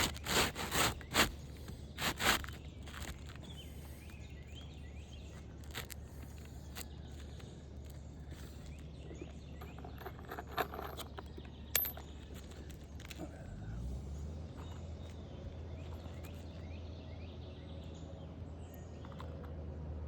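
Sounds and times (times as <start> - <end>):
tools clicking and scraping on roof: 0.0 - 13.6
faint outdoor hum: 0.0 - 20.0.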